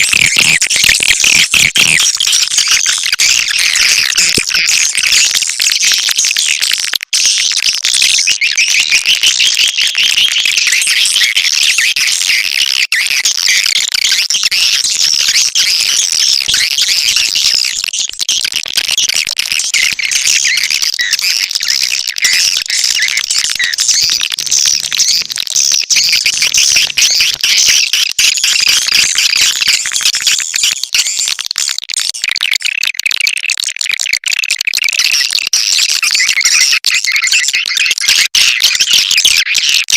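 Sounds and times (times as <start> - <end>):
swiftlets twittering: 19.7 - 27.9.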